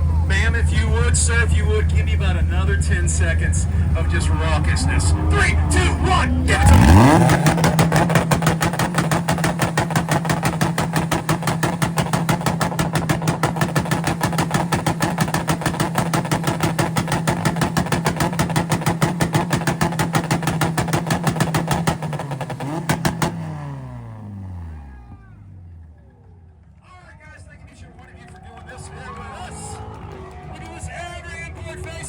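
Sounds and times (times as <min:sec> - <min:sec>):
car exhausts popping and banging: 0:00.0 - 0:25.1.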